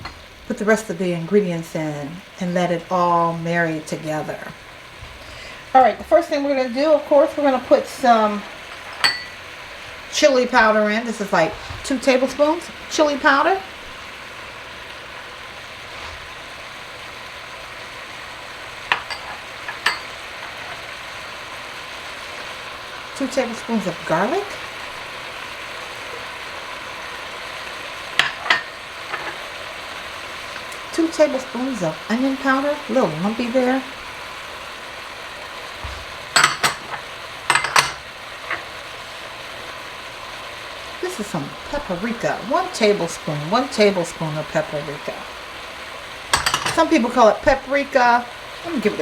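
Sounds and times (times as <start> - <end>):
chicken sizzling in a pot: 0.0 - 49.0
utensil clinking against pot: 8.7 - 9.4, 18.9 - 20.8, 28.2 - 29.4, 36.3 - 38.6, 46.3 - 46.9.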